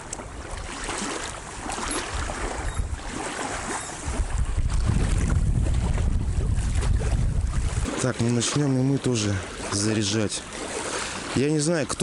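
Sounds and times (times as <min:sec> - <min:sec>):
wind buffeting microphone: 0:00.0 - 0:08.9.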